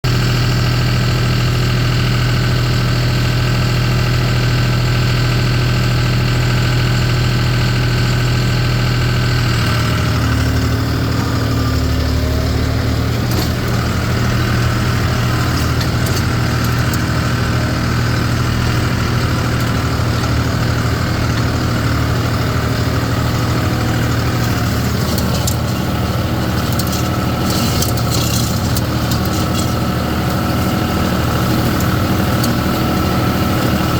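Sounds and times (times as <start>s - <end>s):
tractor engine running: 0.0s - 33.9s
light rattling: 23.8s - 33.8s.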